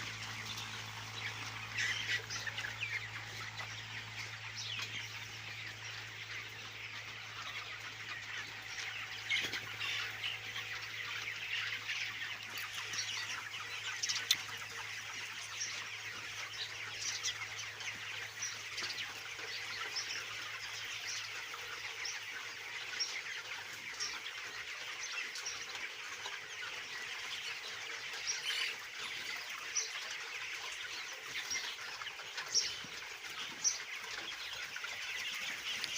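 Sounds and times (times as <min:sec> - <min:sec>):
chicks chirping and clucking: 0:00.0 - 0:35.9
louder chicken calls: 0:00.0 - 0:35.9.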